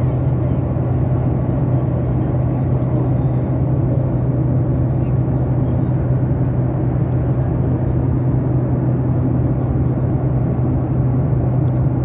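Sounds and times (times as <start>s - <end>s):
airliner cabin engine drone: 0.0s - 12.0s.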